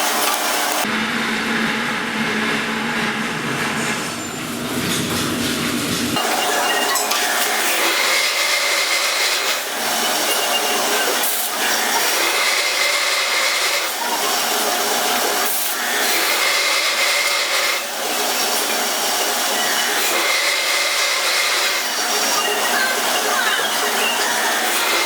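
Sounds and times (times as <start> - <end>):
power drill whining: 0.0 - 0.9, 6.2 - 25.0.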